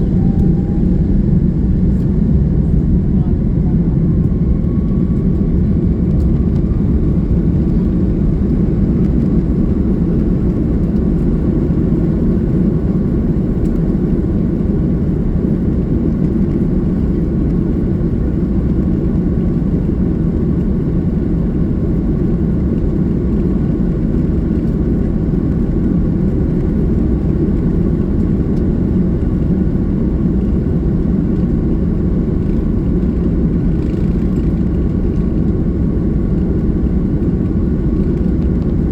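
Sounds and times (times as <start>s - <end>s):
faint whine: 0.0s - 18.8s
aircraft cabin rumble: 0.0s - 38.9s.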